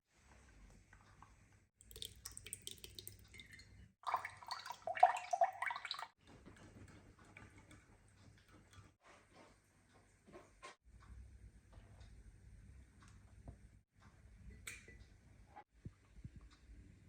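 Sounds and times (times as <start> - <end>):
liquid pouring and gurgling: 1.8 - 6.2.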